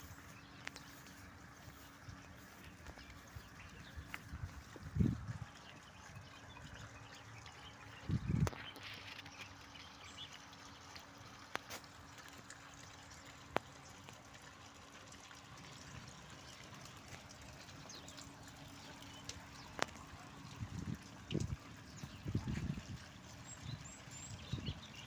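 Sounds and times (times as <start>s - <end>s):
water trickling: 0.0s - 25.0s.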